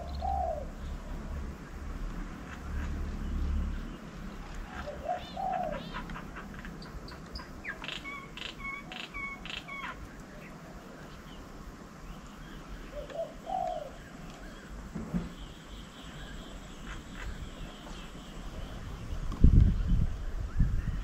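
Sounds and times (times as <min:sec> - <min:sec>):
dove cooing: 0:00.0 - 0:01.3, 0:04.4 - 0:10.0, 0:12.6 - 0:14.8.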